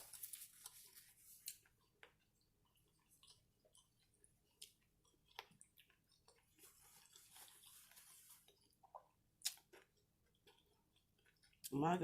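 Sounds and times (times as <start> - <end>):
soft crunching: 0.0 - 11.7
chewing fried food: 0.0 - 12.0
wet mouth clicks and smacks: 8.9 - 9.8.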